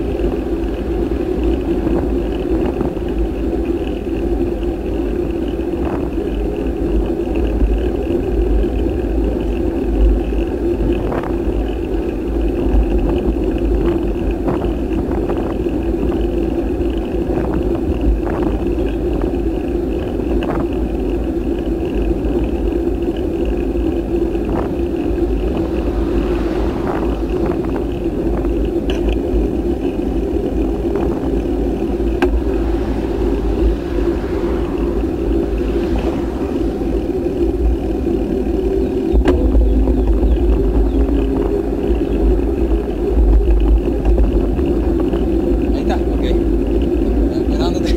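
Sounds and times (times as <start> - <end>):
bike ride rumble: 0.0 - 47.9
wind noise: 0.0 - 47.9.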